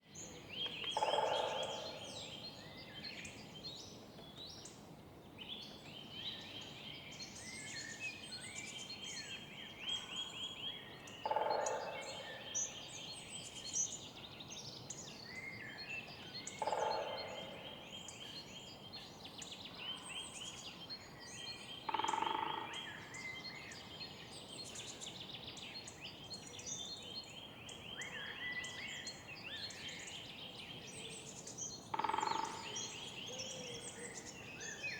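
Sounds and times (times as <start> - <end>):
songbirds singing and chirping: 0.0 - 34.9.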